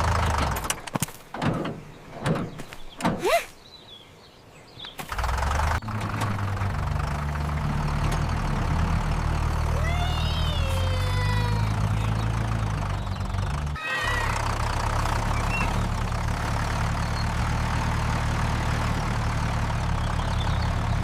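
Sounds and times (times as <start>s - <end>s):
low engine-like hum: 5.1s - 21.0s.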